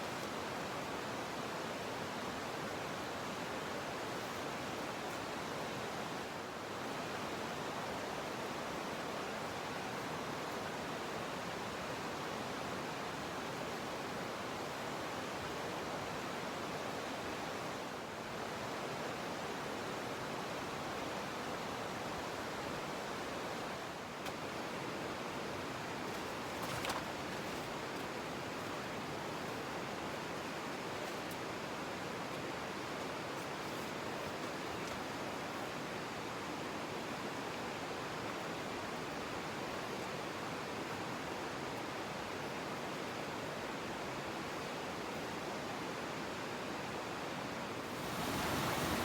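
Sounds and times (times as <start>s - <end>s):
steady rushing noise: 47.8s - 49.0s.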